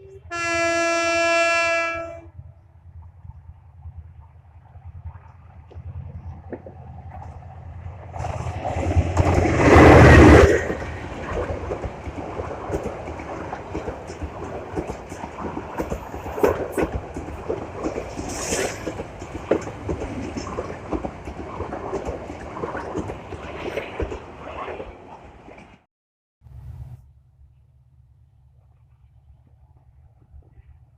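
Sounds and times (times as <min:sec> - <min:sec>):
train passing: 0:00.0 - 0:25.8
wheels clattering over rail joints: 0:04.2 - 0:24.9.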